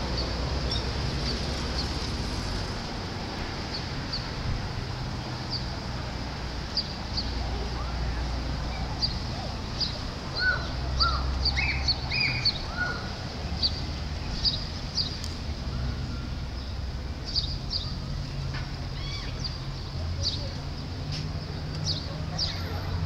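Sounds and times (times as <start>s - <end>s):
birds chirping: 6.7s - 23.0s
low bird calls: 8.7s - 13.8s.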